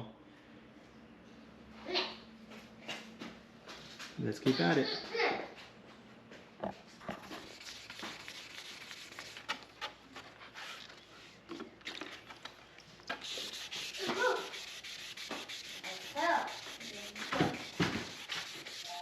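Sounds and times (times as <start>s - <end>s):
sandpaper rubbing on painted surface: 7.3s - 9.9s, 13.1s - 19.0s.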